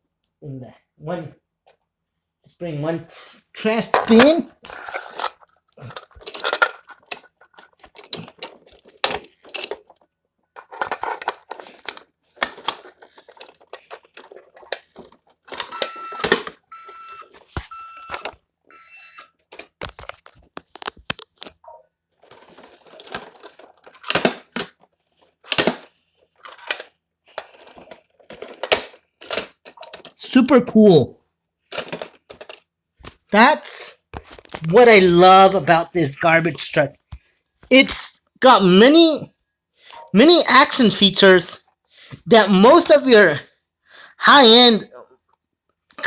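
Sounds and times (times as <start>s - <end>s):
toy mechanism clicking and rattling: 3.9s - 9.9s
electronic beeps: 15.7s - 19.3s.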